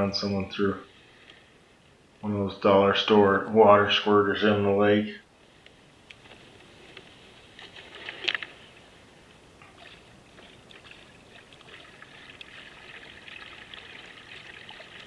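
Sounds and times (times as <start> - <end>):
paddle splash: 7.1 - 9.0, 9.6 - 15.0
water dripping from paddle: 9.6 - 15.0.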